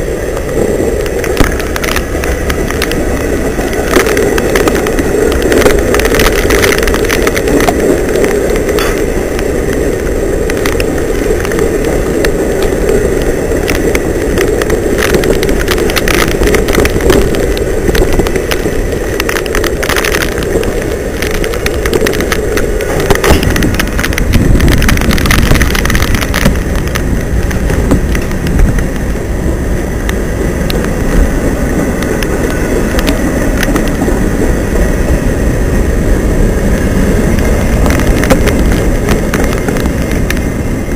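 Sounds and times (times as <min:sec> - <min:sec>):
freight train wheels rumbling on rail: 0:00.0 - 0:40.9
sharp clicks and clatters: 0:00.0 - 0:40.9.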